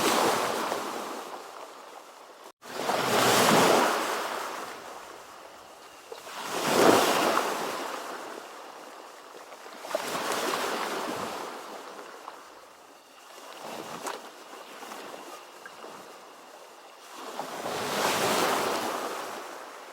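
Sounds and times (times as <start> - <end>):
ocean waves surging: 2.6 - 4.9.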